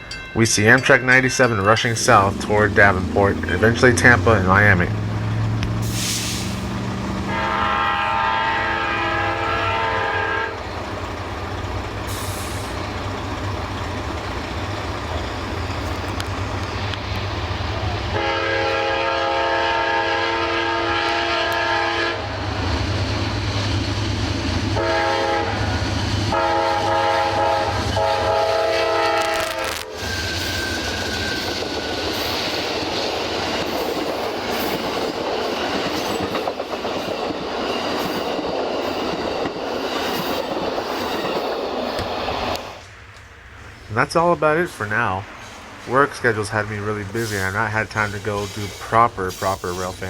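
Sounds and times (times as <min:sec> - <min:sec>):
passing train rumble: 0:00.0 - 0:50.0
train horn blasts: 0:07.2 - 0:10.7, 0:18.1 - 0:22.5, 0:24.8 - 0:31.6.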